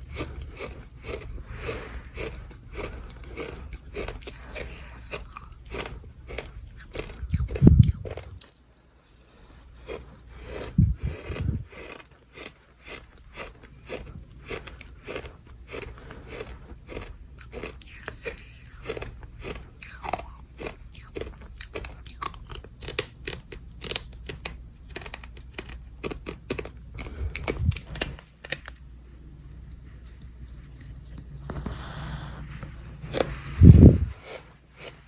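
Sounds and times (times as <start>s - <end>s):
spoon crunching dry sand: 29.6s - 35.0s.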